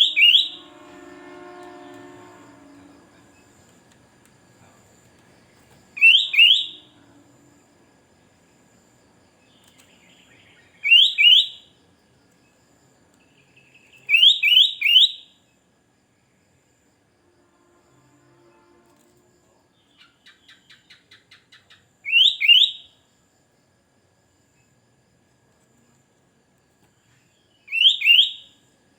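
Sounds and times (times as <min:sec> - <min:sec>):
bird calling bright rising notes: 0:00.0 - 0:00.8, 0:06.0 - 0:06.9.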